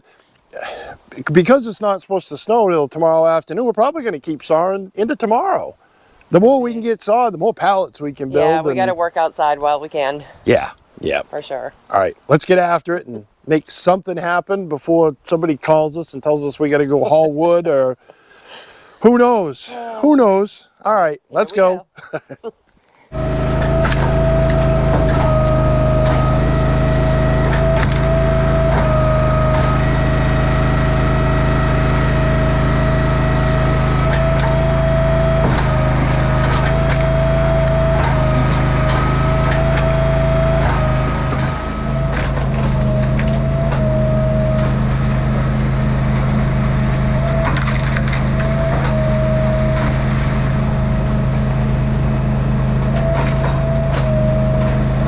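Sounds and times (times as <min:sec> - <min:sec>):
log splitter engine running: 0:23.2 - 0:55.0
wood cracking and splintering: 0:46.9 - 0:49.0.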